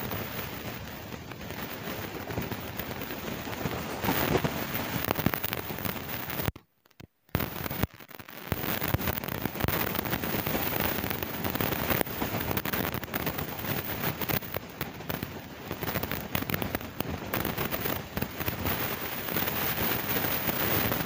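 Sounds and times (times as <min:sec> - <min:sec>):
wind buffeting microphone: 0:00.0 - 0:06.5.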